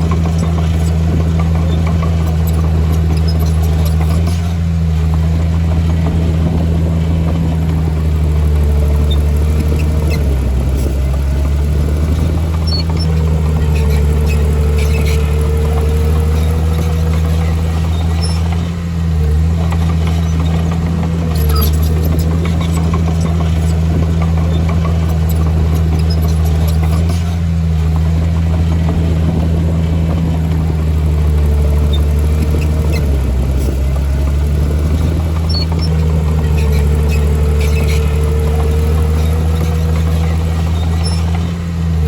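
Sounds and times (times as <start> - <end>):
heavy diesel engine under load: 0.0 - 42.0.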